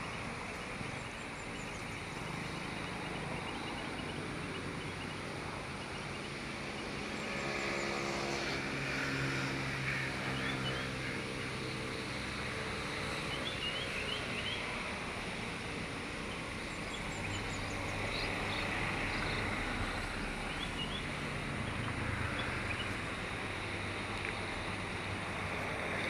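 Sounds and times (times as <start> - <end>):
small birds chirping: 0.0 - 8.5, 12.8 - 24.6.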